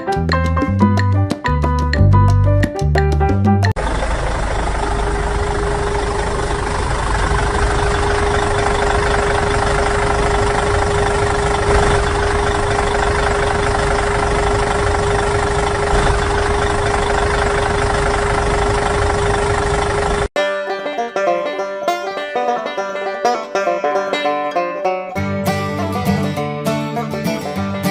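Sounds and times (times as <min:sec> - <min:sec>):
motor humming: 0:03.8 - 0:20.3.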